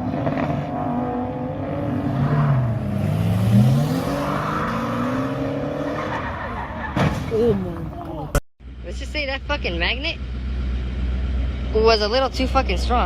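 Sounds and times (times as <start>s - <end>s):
engine running: 8.6s - 13.0s.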